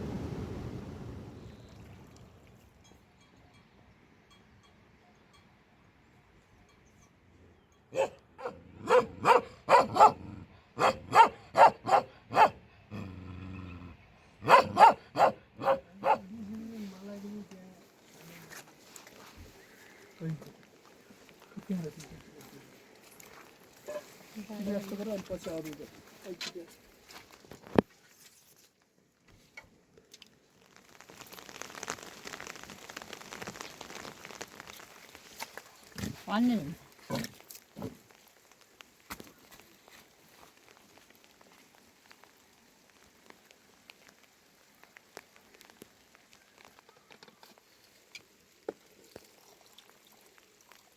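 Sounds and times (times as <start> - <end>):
dog barking: 7.9 - 12.6, 14.4 - 16.3, 23.9 - 24.1
rain pattering: 14.5 - 27.8, 29.6 - 50.9.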